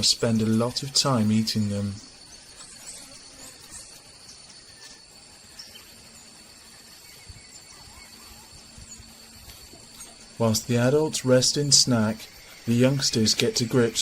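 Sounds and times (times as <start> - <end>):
faint bird chirps: 0.0 - 10.6, 11.6 - 14.0
high insect drone: 0.0 - 14.0
low background hiss: 0.0 - 14.0.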